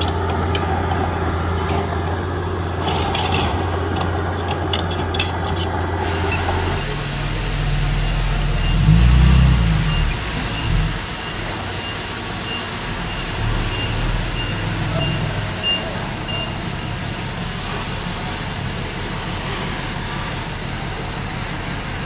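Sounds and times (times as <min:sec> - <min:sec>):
heavy diesel machine running: 0:00.0 - 0:22.0
reversing alarm beeping: 0:06.2 - 0:17.1
short high squeaks: 0:20.1 - 0:21.4.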